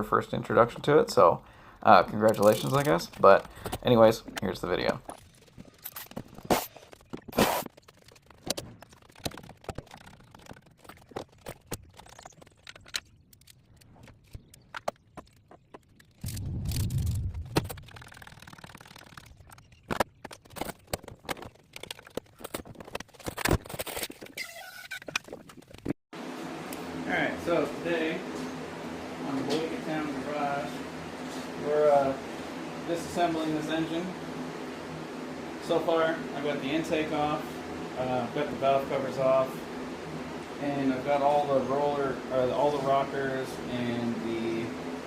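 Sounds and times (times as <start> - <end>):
low rumbling: 16.2 - 19.7.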